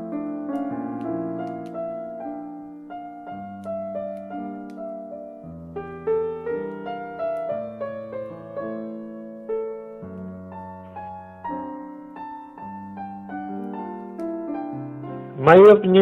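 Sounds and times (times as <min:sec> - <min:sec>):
slow soft piano music: 0:00.0 - 0:16.0.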